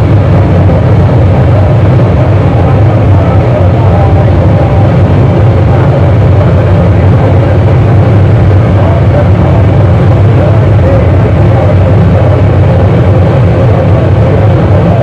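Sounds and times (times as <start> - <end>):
distorted electronic noise music: 0.0 - 15.0.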